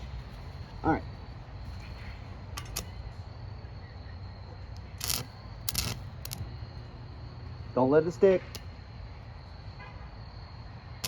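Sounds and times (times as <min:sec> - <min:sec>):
steady low hum: 0:00.0 - 0:11.0
welding arc crackles: 0:04.9 - 0:06.4.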